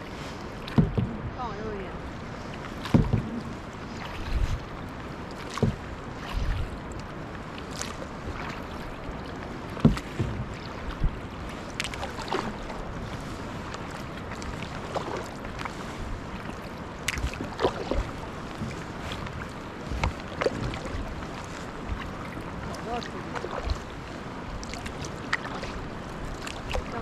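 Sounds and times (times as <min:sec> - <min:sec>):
wind on microphone: 0:00.0 - 0:07.3
paddles splashing water: 0:00.0 - 0:27.0.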